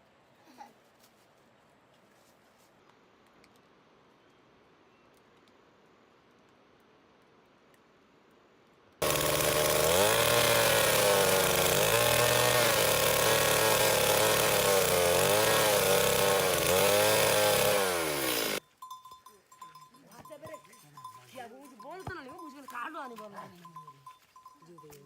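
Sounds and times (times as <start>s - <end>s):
small engine running at high speed: 9.0s - 18.6s.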